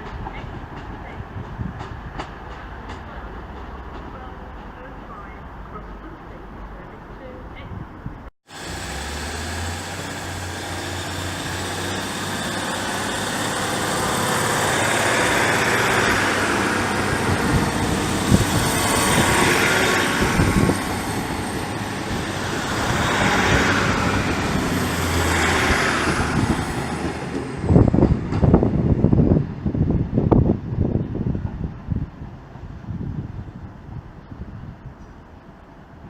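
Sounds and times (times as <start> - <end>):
train running past: 8.5 - 29.7.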